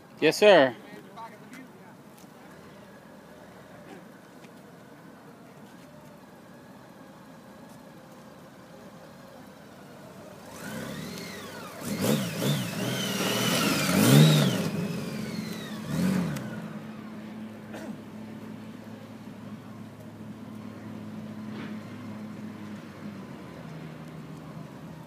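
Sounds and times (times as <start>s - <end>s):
motorcycle engine revving: 10.0s - 18.0s.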